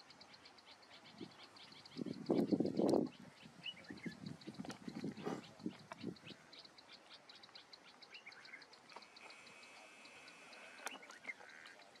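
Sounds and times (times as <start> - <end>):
rapid high ticking bird call: 5.4 - 12.0.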